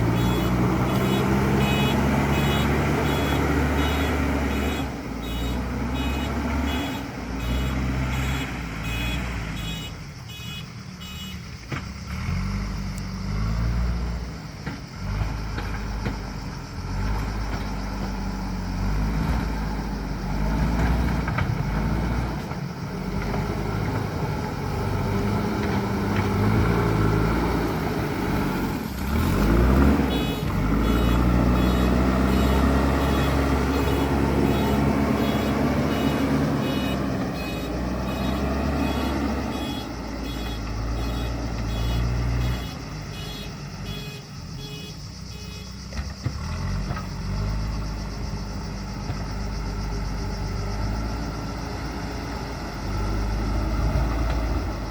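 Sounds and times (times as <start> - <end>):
diesel engine working: 0.0 - 54.9
reversing alarm beeping: 0.1 - 11.4, 30.1 - 45.8.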